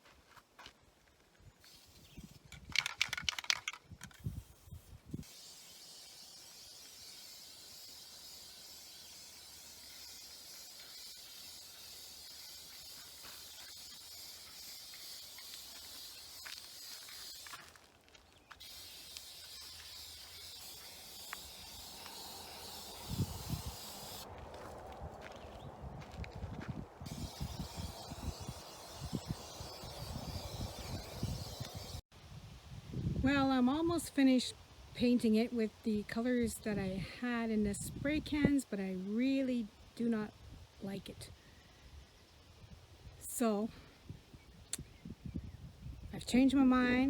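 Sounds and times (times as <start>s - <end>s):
spray can hissing: 1.6s - 17.7s, 18.5s - 24.3s, 27.1s - 32.0s
spray can rattle: 1.7s - 17.7s, 18.6s - 24.2s, 27.1s - 32.0s.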